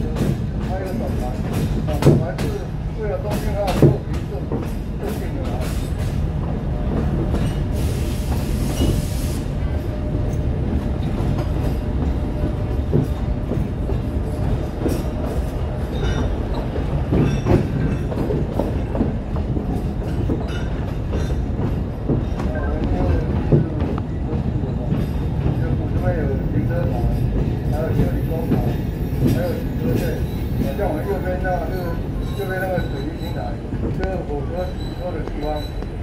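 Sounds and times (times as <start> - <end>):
train rumbling: 0.0 - 36.0.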